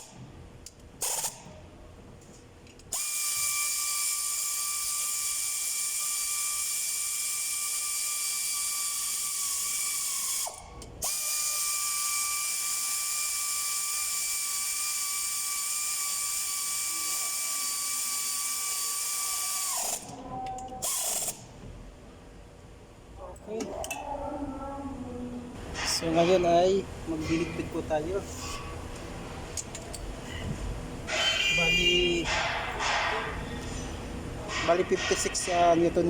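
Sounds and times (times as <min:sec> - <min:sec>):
pneumatic air ratchet whine: 0:00.0 - 0:01.6, 0:02.8 - 0:21.6, 0:31.1 - 0:33.9.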